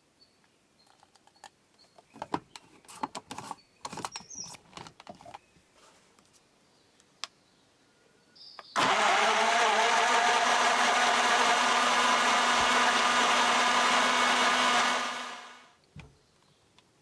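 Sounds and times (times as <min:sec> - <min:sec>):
small electric motor whirring: 0:08.8 - 0:15.7.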